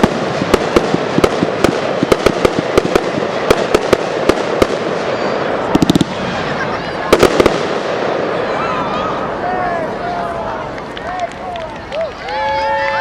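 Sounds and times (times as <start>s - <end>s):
fireworks bangs and pops: 0.0s - 8.5s
dense din of fireworks show: 0.0s - 13.0s.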